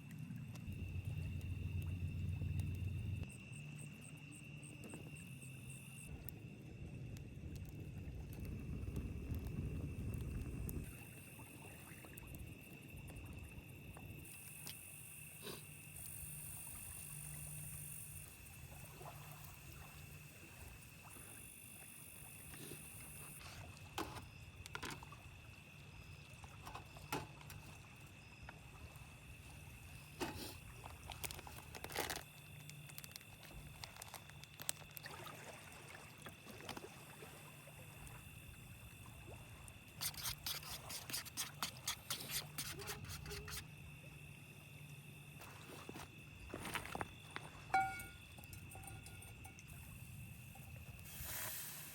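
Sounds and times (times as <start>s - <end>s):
insects trilling: 0.0s - 51.9s
low steady hum: 0.1s - 3.3s, 46.5s - 51.0s.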